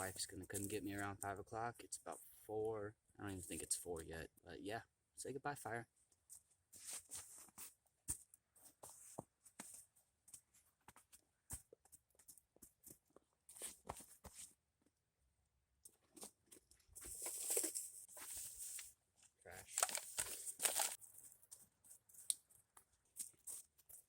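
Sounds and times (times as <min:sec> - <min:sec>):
rustling: 0:06.3 - 0:14.6, 0:16.0 - 0:24.0.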